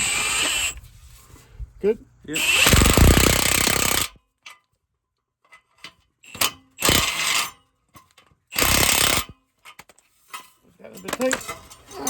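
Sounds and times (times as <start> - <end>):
impact gun bursts: 2.4 - 4.2.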